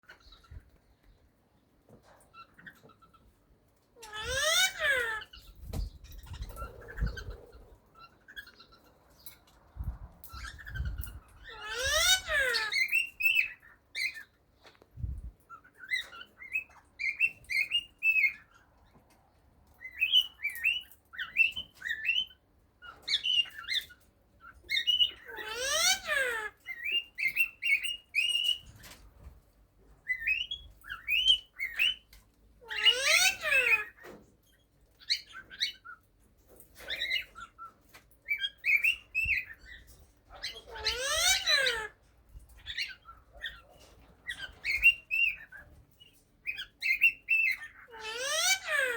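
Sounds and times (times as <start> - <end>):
cockatiel harsh call: 11.4 - 13.5, 40.4 - 42.0, 47.4 - 48.9.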